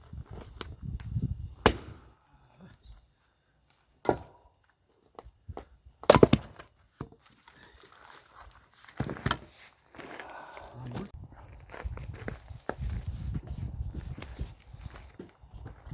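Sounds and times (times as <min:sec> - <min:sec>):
axe splitting firewood: 0:01.6 - 0:02.1, 0:04.0 - 0:04.5, 0:05.2 - 0:07.3, 0:08.9 - 0:09.5.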